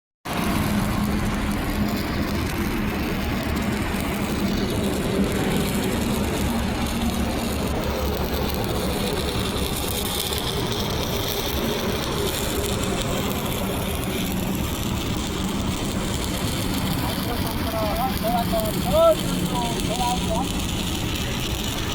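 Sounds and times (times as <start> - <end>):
crackling welding arc: 0.3 - 21.9
engine hum: 0.3 - 21.9.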